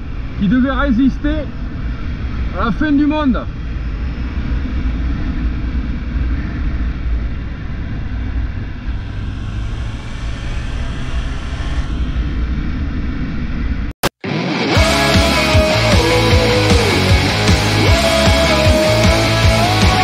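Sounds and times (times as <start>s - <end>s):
wind and road noise: 0.0s - 14.0s
motorcycle engine rumble: 3.4s - 13.3s.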